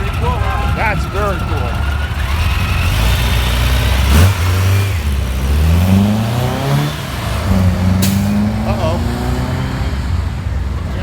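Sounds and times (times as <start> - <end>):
car engine accelerating: 0.0 - 11.0
sharp crack: 7.9 - 9.0.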